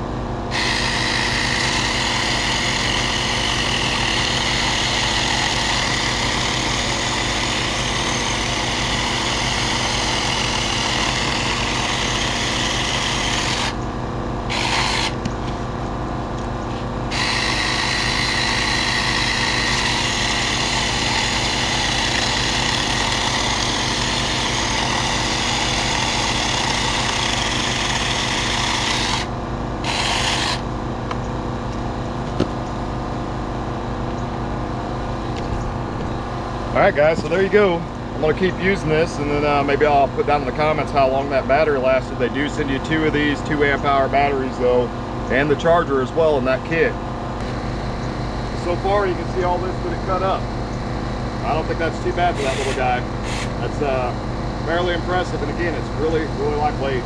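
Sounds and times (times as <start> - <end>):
steady engine hum: 0.0 - 57.0
mini chainsaw whining: 0.5 - 13.8, 14.5 - 15.3, 17.1 - 30.7, 47.4 - 57.0.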